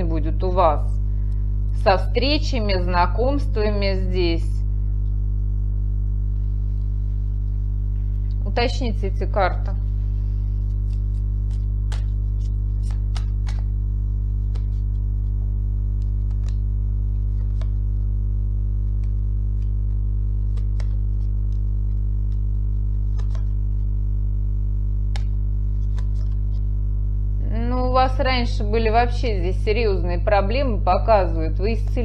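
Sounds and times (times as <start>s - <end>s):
steady low drone: 0.0s - 32.0s
cards clicking and tapping: 10.9s - 13.7s, 14.4s - 14.9s, 16.0s - 16.6s, 17.3s - 17.8s, 20.4s - 23.6s, 25.1s - 26.6s.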